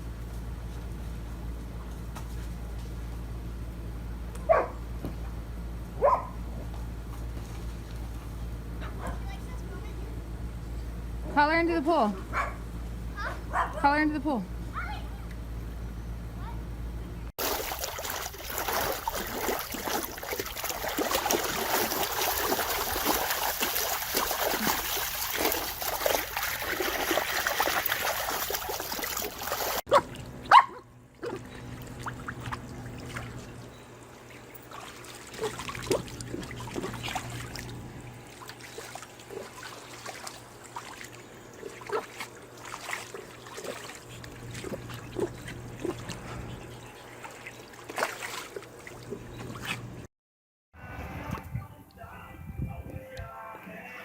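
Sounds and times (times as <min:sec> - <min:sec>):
water splashing in paddling pool: 0:17.4 - 0:49.9.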